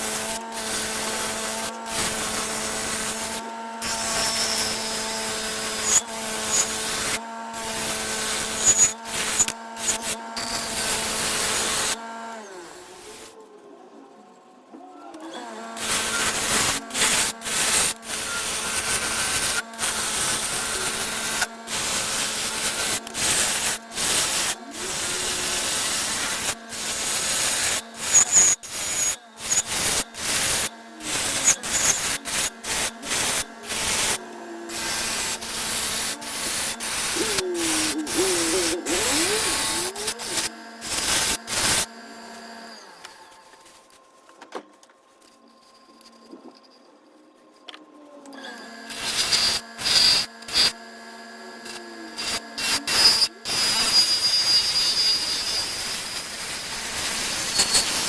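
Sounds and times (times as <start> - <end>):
tool scraping wooden bowl: 0.0 - 12.0, 15.8 - 42.0, 51.7 - 58.0.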